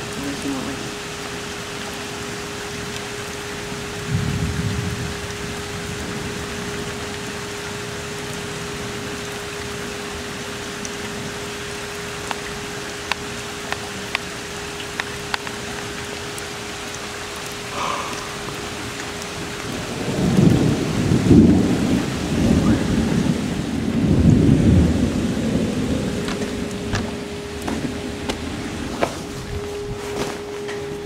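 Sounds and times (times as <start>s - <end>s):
heavy rain falling: 0.0s - 31.0s
steady hum: 0.0s - 31.0s
low thunder rumble: 4.0s - 6.9s, 17.8s - 30.0s.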